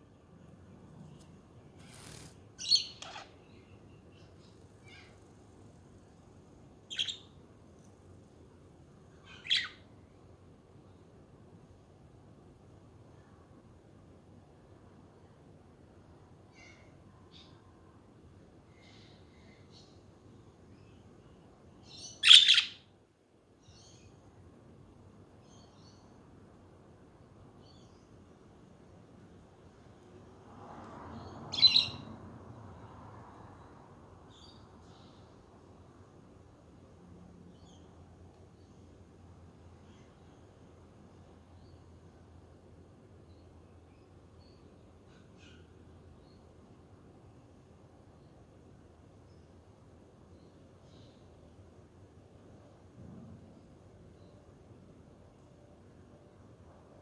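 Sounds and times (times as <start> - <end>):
faint bird chirps: 1.8 - 5.3, 6.9 - 7.4, 9.2 - 9.8, 20.8 - 22.9, 31.2 - 32.1, 43.3 - 46.5
budgerigars chirping: 6.9 - 7.2, 9.3 - 9.7, 22.0 - 22.8
budgerigar calling: 22.2 - 22.8.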